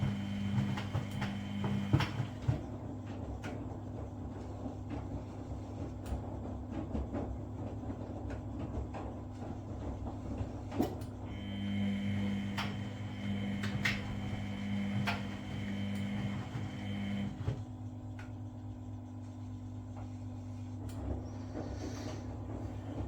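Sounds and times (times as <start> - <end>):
motor hum: 0.0 - 2.8, 11.3 - 18.8
washing machine rumble: 0.0 - 23.0.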